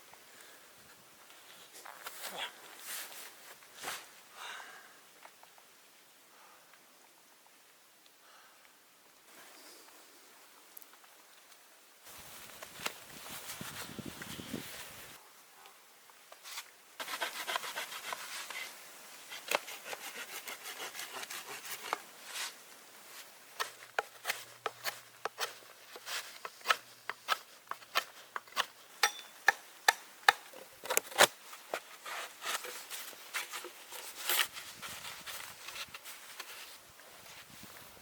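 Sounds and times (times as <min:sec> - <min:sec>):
rasping wood: 0:17.0 - 0:18.7, 0:19.3 - 0:22.0.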